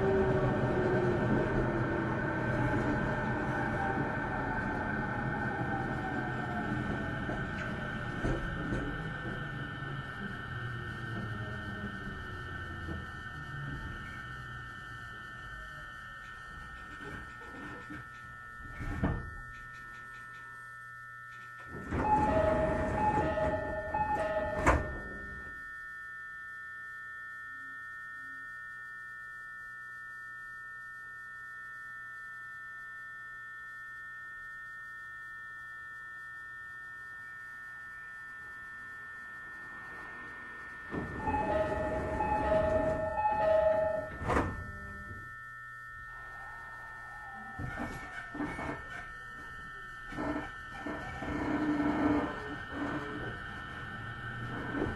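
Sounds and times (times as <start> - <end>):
electrical hum of train: 0.0 - 26.1, 38.0 - 54.9
two-note door chime: 21.7 - 25.7, 40.9 - 46.4
train doors sliding: 41.0 - 44.8.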